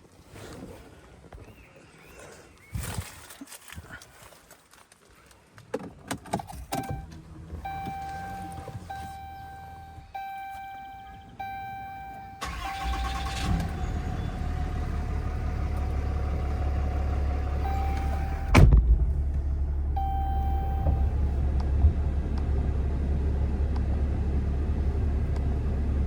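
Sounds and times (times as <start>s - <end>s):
diesel engine starting and idling: 6.6s - 26.0s
chime tone: 7.7s - 13.0s
loud thump: 18.4s - 19.4s.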